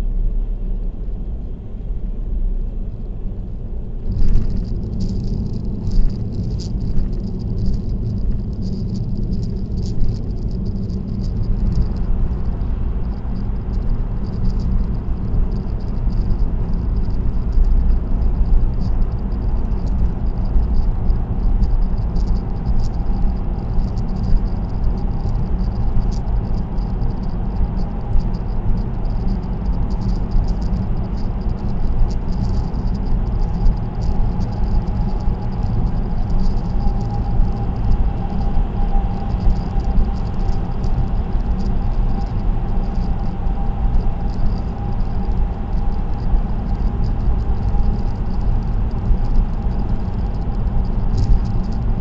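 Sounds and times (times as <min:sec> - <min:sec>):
road and tyre noise: 0:00.0 - 0:52.0
crackly rattle: 0:02.9 - 0:52.0.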